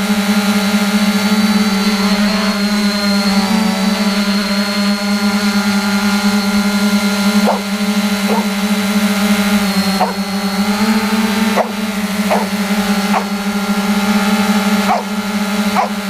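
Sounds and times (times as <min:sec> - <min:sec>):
drone propellers buzzing: 0:00.0 - 0:16.0
dog barking: 0:07.4 - 0:08.6, 0:09.8 - 0:13.5, 0:14.8 - 0:16.0.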